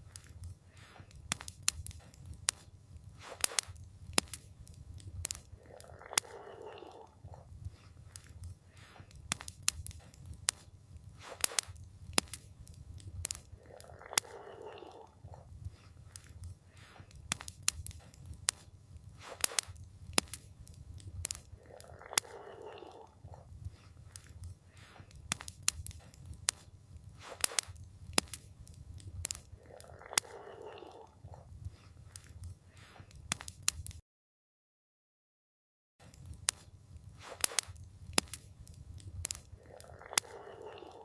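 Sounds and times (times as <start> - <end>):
wood fire crackling: 0.0 - 34.0, 36.0 - 41.0.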